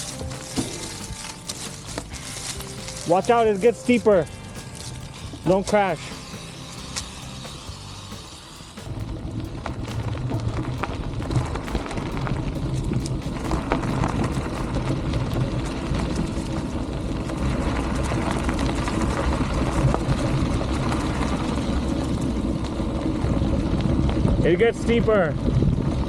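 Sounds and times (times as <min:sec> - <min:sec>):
bicycle tyres rolling on dirt: 0:00.0 - 0:26.0
wind rushing over microphone: 0:06.8 - 0:26.0.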